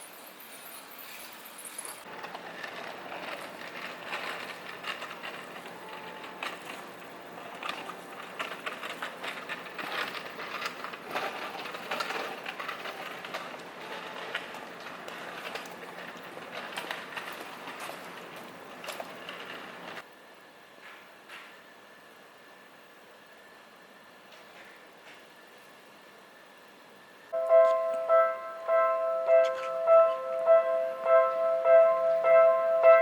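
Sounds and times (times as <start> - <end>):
train wheels clattering on rails: 2.0 - 20.0, 27.3 - 33.0.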